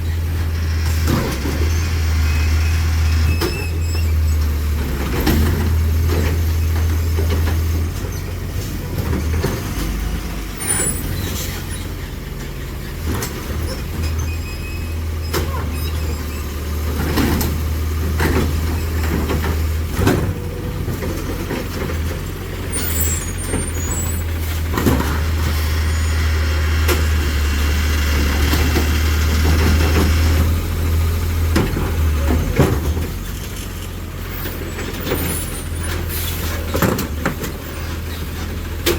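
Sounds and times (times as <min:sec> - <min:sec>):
garbage truck engine drumming: 0:00.0 - 0:38.9
short high squeals: 0:01.7 - 0:04.6, 0:10.6 - 0:13.0, 0:13.7 - 0:16.7, 0:22.7 - 0:24.4
knocks and clanks of bins: 0:03.3 - 0:10.1, 0:16.8 - 0:25.8, 0:31.3 - 0:38.9.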